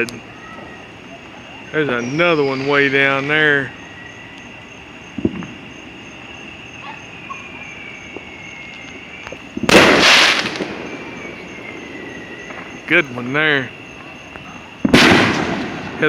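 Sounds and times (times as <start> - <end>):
firework burst: 9.5 - 12.7, 14.8 - 16.0.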